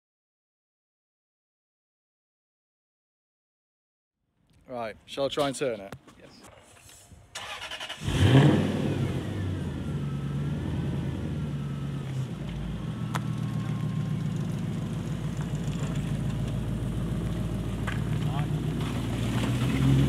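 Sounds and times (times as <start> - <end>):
car engine revving then idling: 7.4 - 20.0.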